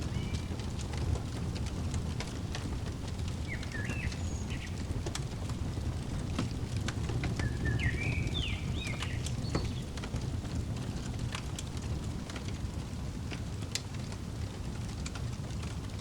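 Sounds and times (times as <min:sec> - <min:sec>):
bird chirping: 0:00.0 - 0:00.6, 0:03.1 - 0:05.5, 0:07.2 - 0:10.0
fireplace crackling: 0:00.0 - 0:16.0.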